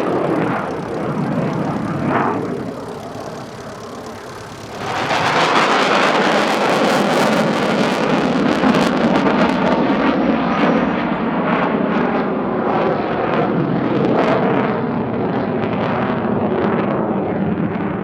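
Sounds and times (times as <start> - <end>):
rapid crackle: 0.0 - 8.0
jet engine afterburner roar: 0.0 - 18.0.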